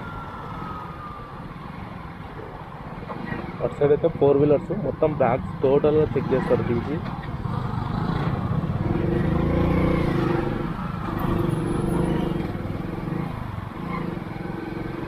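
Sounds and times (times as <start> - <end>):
motorcycle engine at low revs: 6.1 - 15.0.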